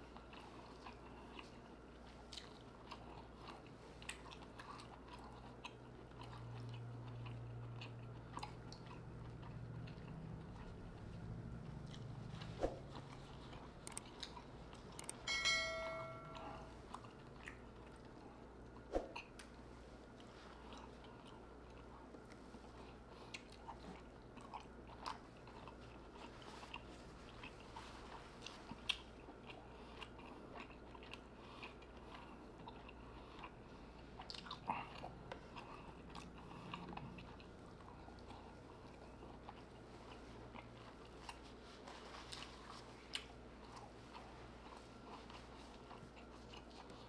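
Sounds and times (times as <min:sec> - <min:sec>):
faint steady hum: 0:00.0 - 0:47.0
person chewing wet mouth clicks: 0:13.8 - 0:15.2.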